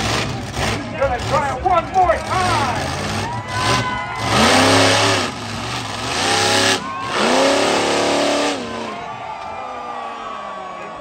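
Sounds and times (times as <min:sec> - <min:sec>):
truck engine revving hard: 0:00.0 - 0:09.1.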